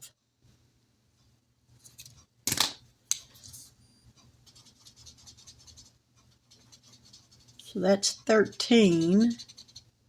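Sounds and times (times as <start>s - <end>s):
pen scratching on paper: 4.4s - 10.0s.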